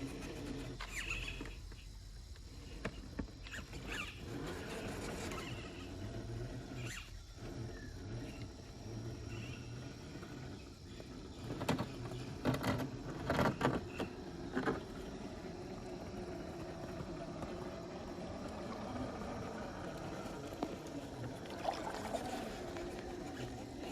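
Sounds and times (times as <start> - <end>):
running water: 20.7 - 23.8
water sloshing and splashing: 21.3 - 23.9.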